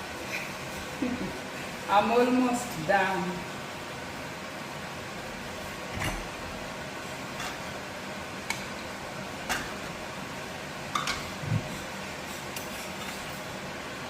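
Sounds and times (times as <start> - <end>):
steady background hiss: 0.0 - 14.0
utensils clinking against pans: 10.9 - 11.3.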